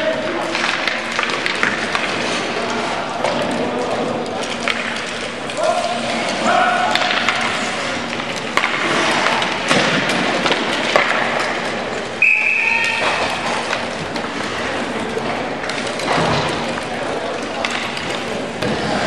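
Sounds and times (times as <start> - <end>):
crowd noise: 0.0 - 19.0
sticks and puck knocking on ice: 6.8 - 11.7
shrill whistle blast: 12.2 - 13.0.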